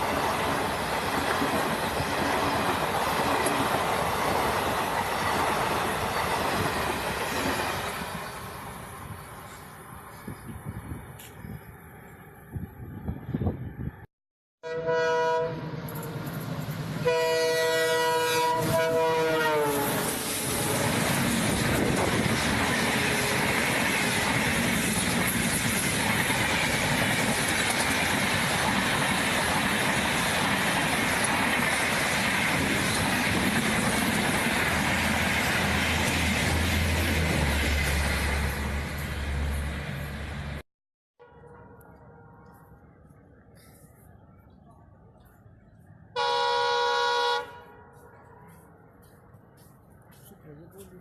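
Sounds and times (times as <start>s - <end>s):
train horn: 14.6s - 15.8s, 17.0s - 20.8s, 46.2s - 48.0s
train wheels clattering on rails: 20.2s - 38.2s.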